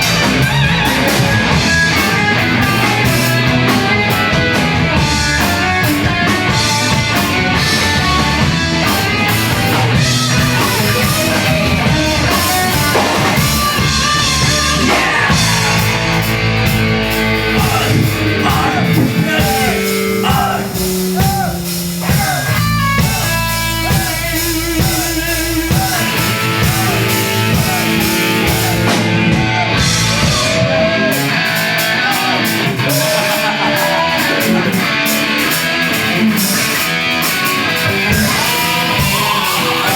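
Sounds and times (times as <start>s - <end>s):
drum kit: 0.0s - 39.9s
electric guitars: 0.0s - 39.9s
vocals: 0.0s - 39.9s.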